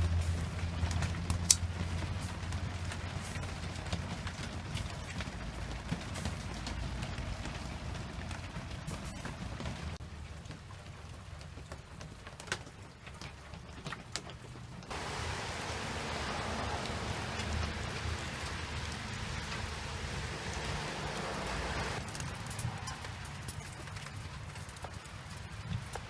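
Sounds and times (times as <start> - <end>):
heavy rain hissing: 0.0 - 10.0, 14.9 - 26.0
low rumble: 14.9 - 22.2.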